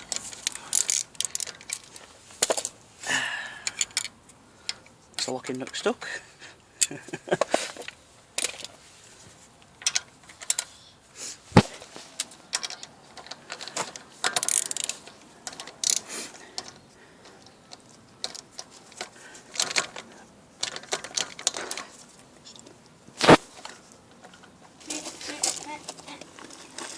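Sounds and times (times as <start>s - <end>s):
ratchet clicking on wheel nuts: 0.0s - 2.0s, 12.5s - 16.7s.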